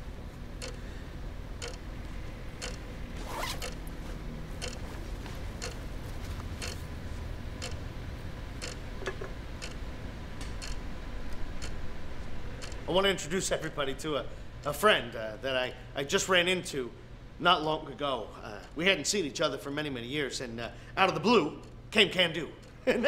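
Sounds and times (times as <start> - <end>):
low room hum: 0.0 - 23.0
backpack zipper opening: 3.2 - 3.8.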